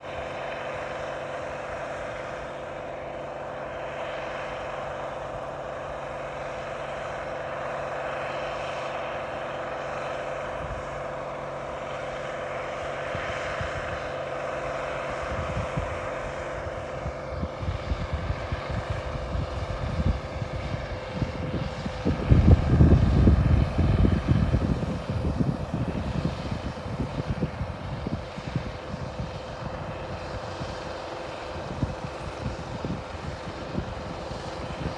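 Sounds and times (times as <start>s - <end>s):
combine harvester humming: 0.0s - 34.9s
uneven low rumble: 15.1s - 30.8s.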